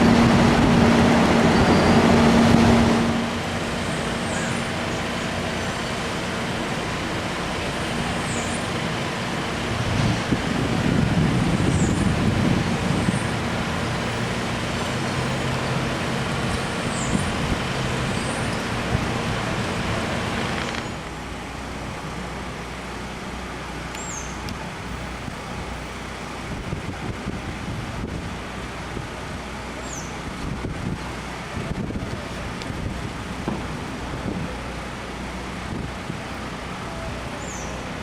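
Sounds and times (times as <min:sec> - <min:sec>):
engine low hum: 0:00.0 - 0:38.0
vehicle noise: 0:00.0 - 0:38.0.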